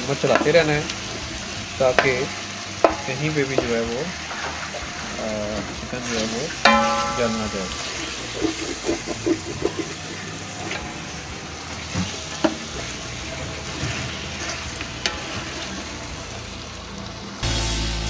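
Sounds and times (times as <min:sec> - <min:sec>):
chicken frying in oil: 0:00.0 - 0:17.5
music: 0:00.0 - 0:18.0
wooden spoon scraping a pot: 0:07.7 - 0:15.8.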